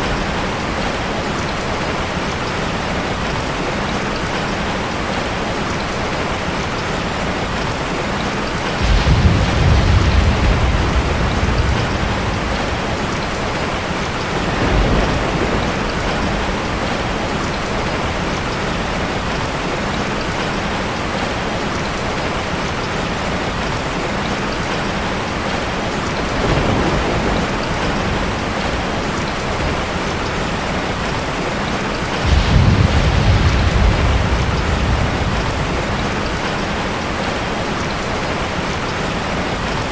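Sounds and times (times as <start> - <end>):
heavy rain falling: 0.0 - 39.9
rolls of thunder: 8.8 - 18.2, 26.2 - 29.8, 32.1 - 37.3.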